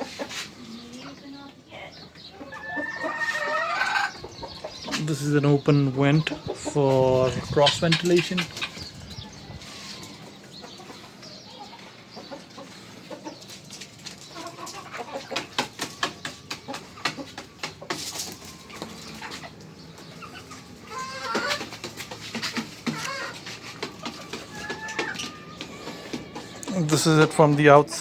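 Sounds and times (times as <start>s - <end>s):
hens clucking: 0.0s - 28.0s.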